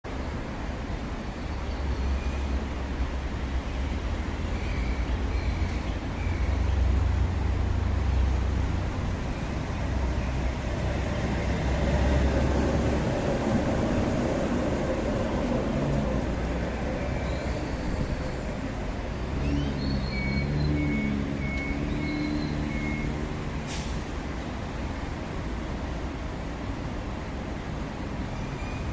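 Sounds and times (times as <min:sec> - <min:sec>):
light rail train rumbling: 0:00.0 - 0:28.9.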